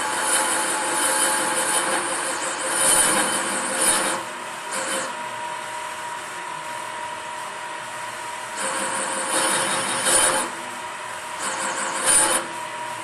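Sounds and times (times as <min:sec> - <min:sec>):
rasping metal cutting: 0:00.0 - 0:05.3, 0:08.6 - 0:10.6, 0:11.3 - 0:12.8
machine humming: 0:00.0 - 0:13.0.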